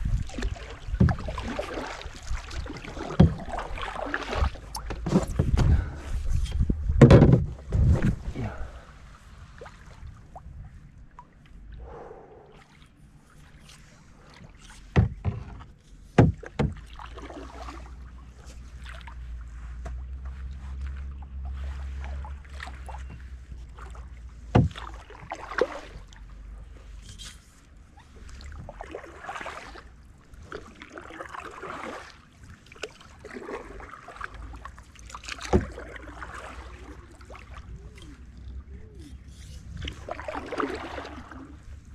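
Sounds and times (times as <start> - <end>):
paddle splashing in water: 0.0 - 41.9
paddle knocking against canoe: 0.1 - 5.9, 6.5 - 8.2, 14.8 - 17.4, 24.4 - 25.7, 35.2 - 36.6.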